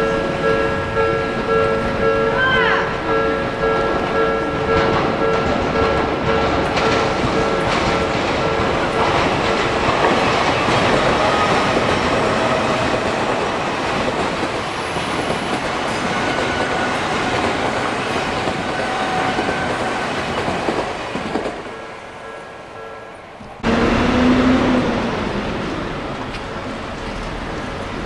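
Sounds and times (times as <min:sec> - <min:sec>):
crossing warning bell ringing: 0:00.0 - 0:12.1, 0:15.5 - 0:23.8
train passing with clickety-clack: 0:02.9 - 0:28.0.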